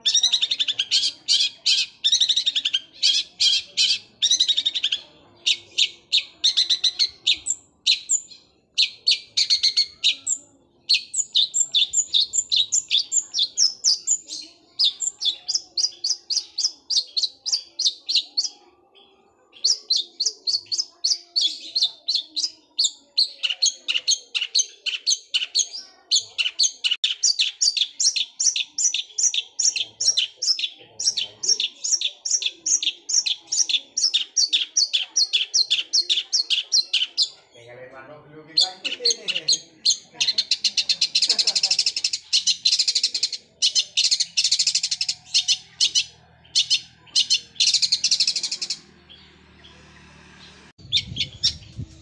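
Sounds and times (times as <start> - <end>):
shrike singing fast chirps: 38.6 - 52.0.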